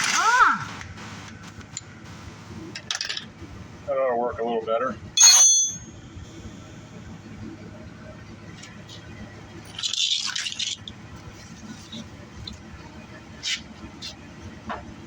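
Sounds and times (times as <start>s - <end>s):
sharp ringing metal strike: 5.2s - 6.0s
metal scraping and rattling: 9.6s - 12.0s.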